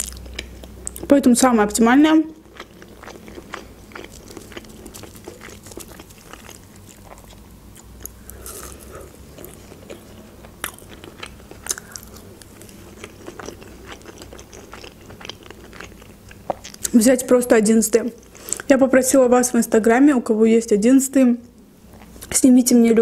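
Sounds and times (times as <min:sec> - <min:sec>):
crunchy chewing: 0:02.4 - 0:16.9.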